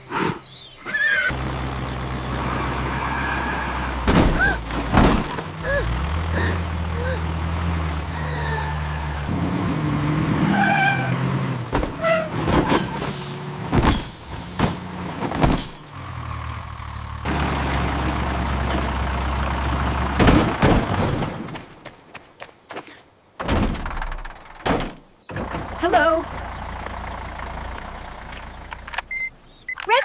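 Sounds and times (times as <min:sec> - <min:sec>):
cartoon engine hum: 0:05.5 - 0:10.1
sharp knocks and clanks: 0:23.4 - 0:25.7.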